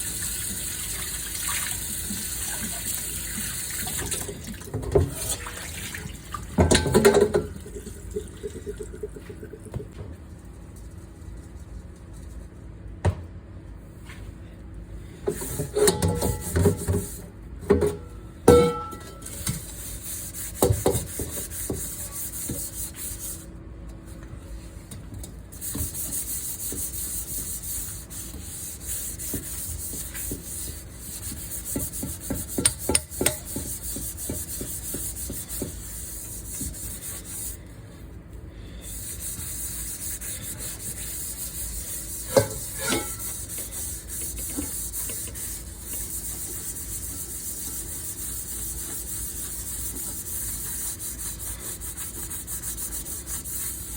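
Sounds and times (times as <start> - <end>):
dishes clinking: 6.6 - 7.5, 18.5 - 19.4, 42.3 - 43.3
scrubbing cookware: 15.3 - 17.2, 18.5 - 23.4, 25.5 - 37.6, 38.8 - 53.9.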